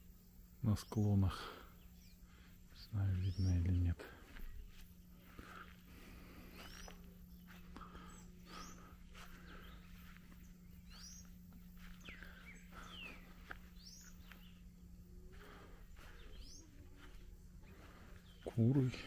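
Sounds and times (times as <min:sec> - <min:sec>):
faint bird chirps: 0:00.0 - 0:19.0
steady low hum: 0:00.0 - 0:19.0.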